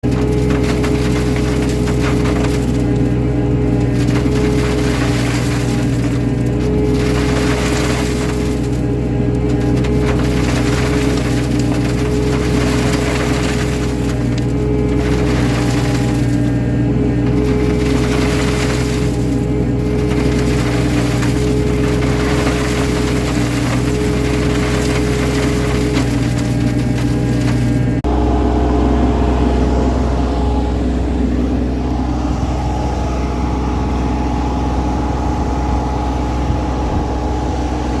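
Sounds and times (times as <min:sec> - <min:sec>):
soil and stones rattling: 0:00.0 - 0:28.1
diesel engine running: 0:00.0 - 0:38.0.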